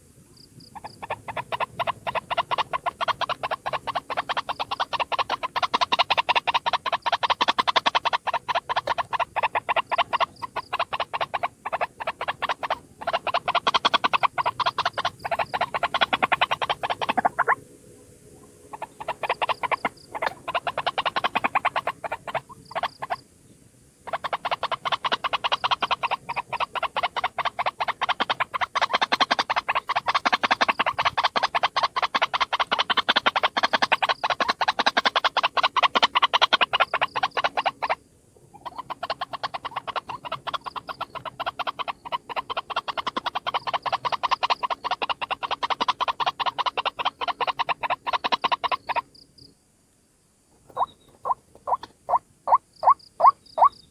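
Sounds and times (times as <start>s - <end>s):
waterhen calling harshly: 0.8s - 17.6s, 18.7s - 23.2s, 50.7s - 53.7s.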